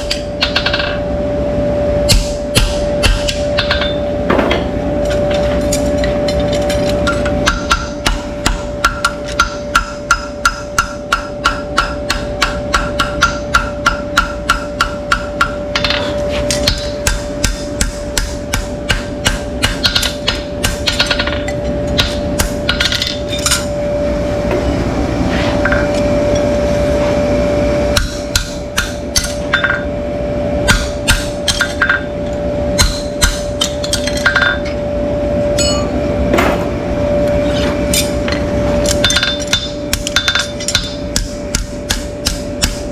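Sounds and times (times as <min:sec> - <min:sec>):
steady hum: 0:00.0 - 0:42.9
metallic hammer strikes: 0:02.1 - 0:23.7, 0:27.9 - 0:29.9, 0:30.6 - 0:32.1, 0:32.8 - 0:34.8, 0:35.6 - 0:36.7, 0:37.9 - 0:42.9.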